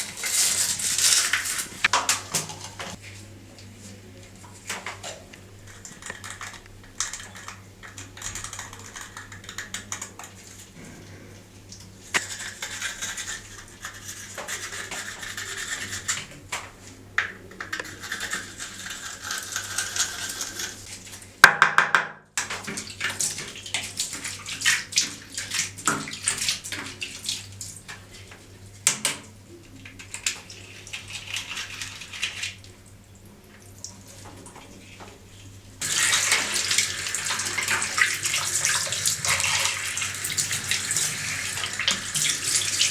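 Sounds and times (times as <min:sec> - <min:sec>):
water running and splashing: 0:22.4 - 0:28.9, 0:29.6 - 0:42.9.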